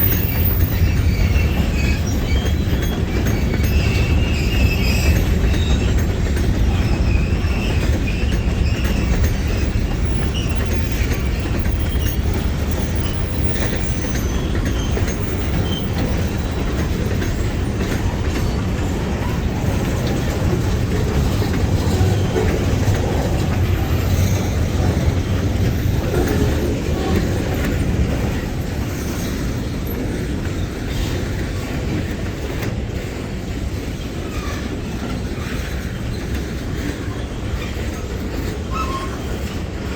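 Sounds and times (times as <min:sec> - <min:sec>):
faint high wheel squeal: 0:00.0 - 0:31.2, 0:33.9 - 0:39.9
low train rumble: 0:00.0 - 0:39.9
train wheels clacking over rails: 0:00.0 - 0:39.9.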